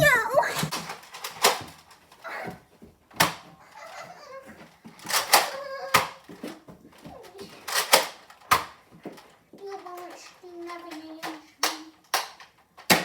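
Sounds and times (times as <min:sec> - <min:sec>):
toy blasters clacking: 0:05.0 - 0:06.2, 0:07.6 - 0:08.8, 0:09.7 - 0:13.0
faint children's voices: 0:05.2 - 0:07.8.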